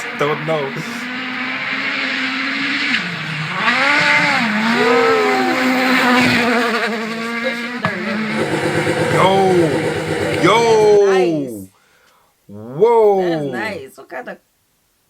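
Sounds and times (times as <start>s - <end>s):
rally car engine at high revs: 0.6s - 4.8s, 7.9s - 11.0s.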